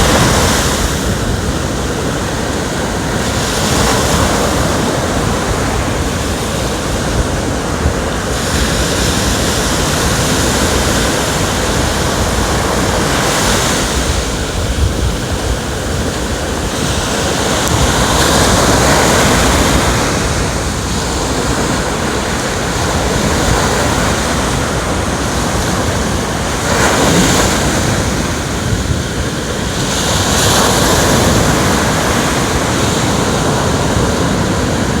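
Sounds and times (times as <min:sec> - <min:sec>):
ocean waves breaking: 0:00.0 - 0:35.0
wind on microphone: 0:00.0 - 0:35.0.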